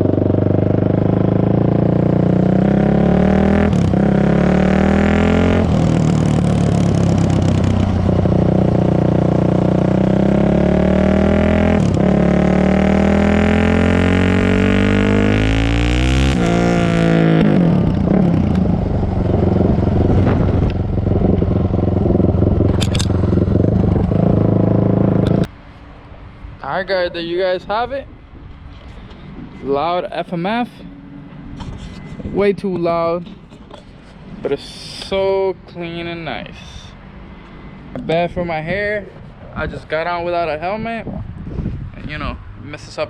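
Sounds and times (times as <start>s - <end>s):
loud motorcycle engine revving: 0.0s - 25.5s.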